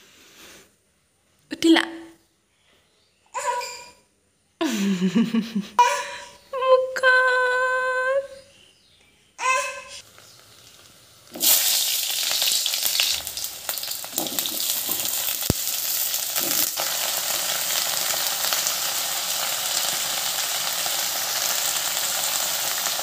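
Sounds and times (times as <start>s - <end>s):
vegetables sizzling in hot oil: 10.0s - 23.0s
spoon stirring vegetables: 12.3s - 18.6s.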